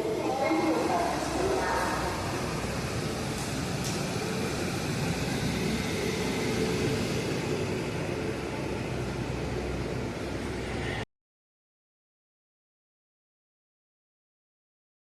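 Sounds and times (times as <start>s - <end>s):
passenger train running: 0.0s - 11.0s.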